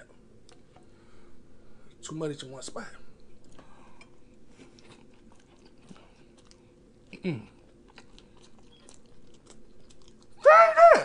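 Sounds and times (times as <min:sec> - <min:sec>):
chewing and biting sandwich: 0:04.5 - 0:10.4.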